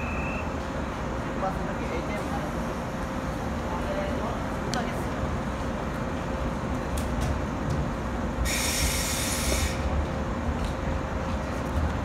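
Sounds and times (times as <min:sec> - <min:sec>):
compressed air hiss: 0:08.4 - 0:09.9.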